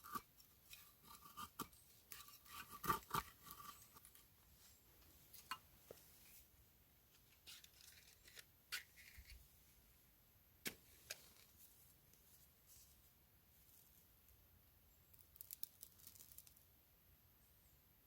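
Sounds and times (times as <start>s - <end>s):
small objects clicking and tapping: 0.0s - 4.2s, 15.1s - 16.6s.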